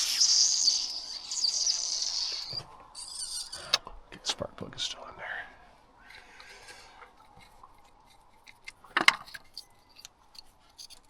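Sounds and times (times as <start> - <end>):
small metal clinks: 7.2 - 11.0
socket wrench clicking: 8.4 - 11.0.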